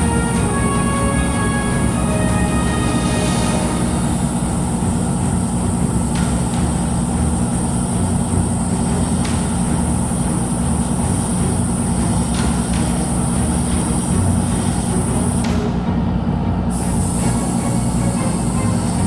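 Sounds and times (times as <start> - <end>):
low mechanical hum: 0.0 - 19.0
high-pitched hiss: 16.7 - 19.0.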